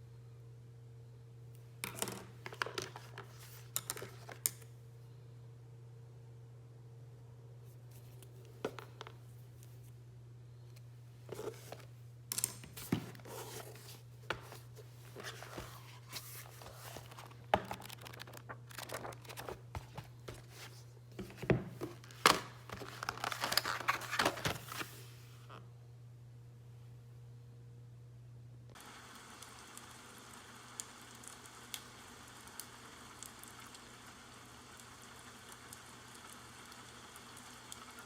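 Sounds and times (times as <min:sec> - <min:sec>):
steady low hum: 0:00.0 - 0:28.7
packaging crinkling and rustling: 0:12.6 - 0:25.2
packaging tearing: 0:15.2 - 0:20.8, 0:22.0 - 0:24.8.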